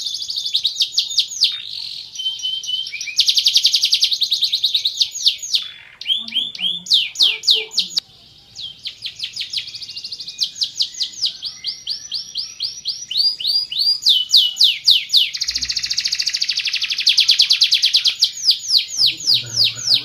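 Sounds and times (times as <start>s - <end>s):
canary singing trills: 0.0s - 20.0s.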